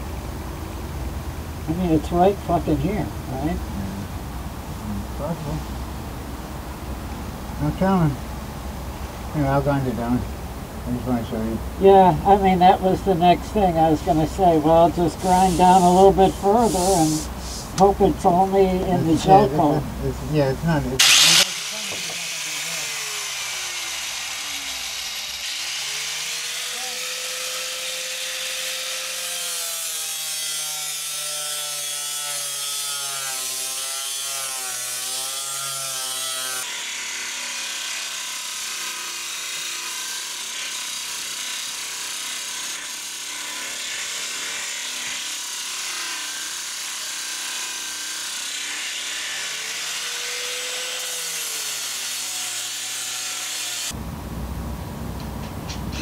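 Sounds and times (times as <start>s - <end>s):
angle grinder grinding: 11.2s - 54.0s.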